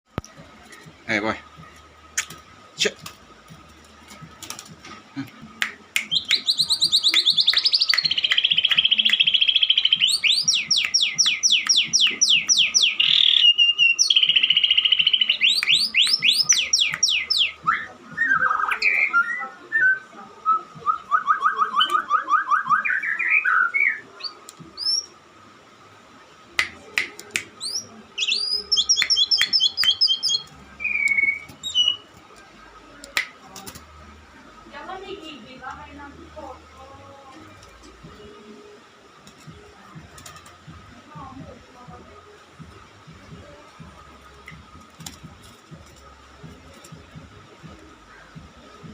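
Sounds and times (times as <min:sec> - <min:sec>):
songbird singing: 0:05.7 - 0:25.2, 0:27.3 - 0:33.1.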